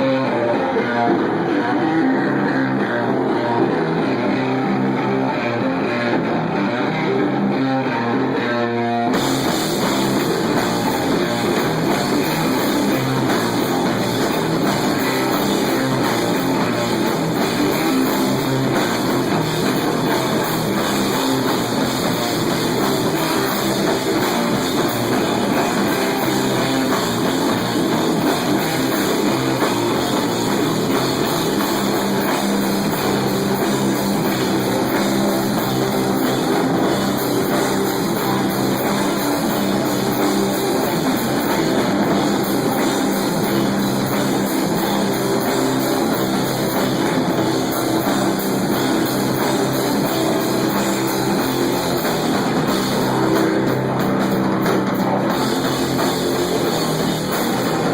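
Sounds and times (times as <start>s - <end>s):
metal band playing live: 0.0s - 57.9s.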